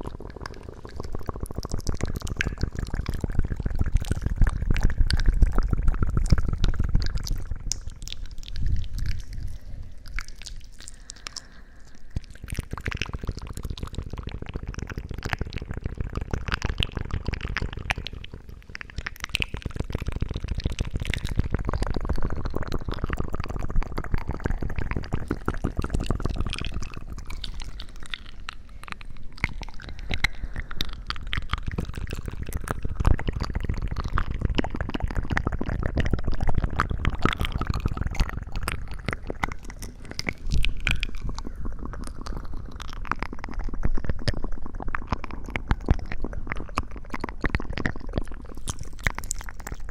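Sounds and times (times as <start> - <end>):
wet squishing and crackling: 0.0 - 49.9.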